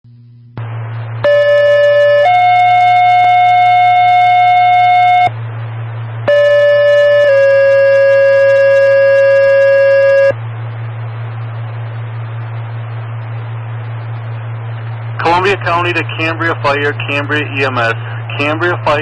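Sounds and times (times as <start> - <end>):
two-tone radio paging tones: 0.6 - 5.3, 6.3 - 10.4
radio hiss: 0.6 - 19.0.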